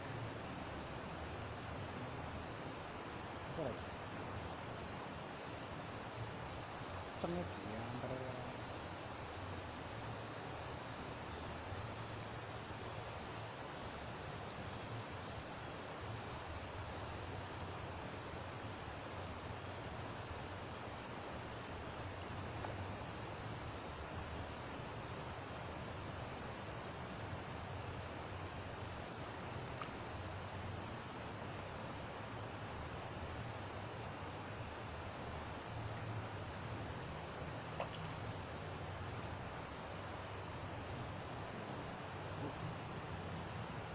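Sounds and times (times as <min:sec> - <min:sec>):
even hiss: 0:00.0 - 0:43.9
insect chorus shrilling: 0:33.2 - 0:43.9.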